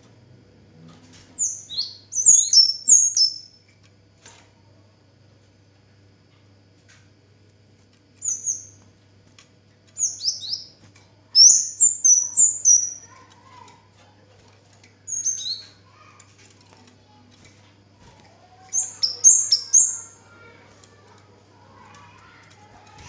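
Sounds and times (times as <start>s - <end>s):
faint low hum: 0.0s - 23.0s
songbird chirping: 1.4s - 3.6s, 9.9s - 10.8s, 11.4s - 13.8s, 15.1s - 16.1s, 18.2s - 23.0s.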